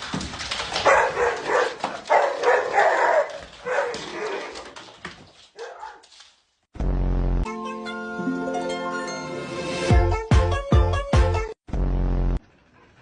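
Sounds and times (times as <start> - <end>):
dog barking: 0.8 - 4.6, 5.6 - 6.0
music: 6.8 - 11.6.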